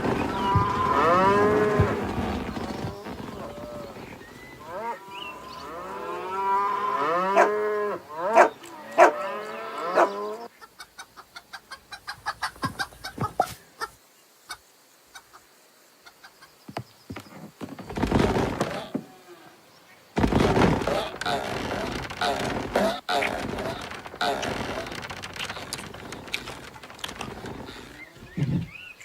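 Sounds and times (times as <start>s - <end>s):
chickens clucking: 9.9s - 16.6s.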